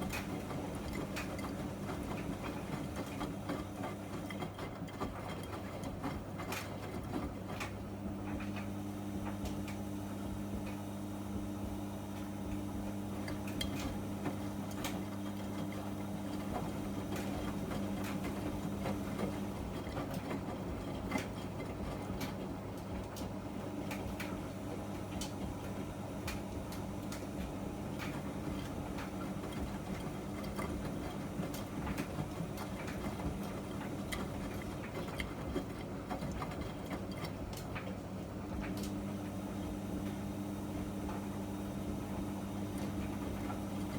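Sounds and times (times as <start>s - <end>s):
washing machine hum: 0.0s - 43.9s.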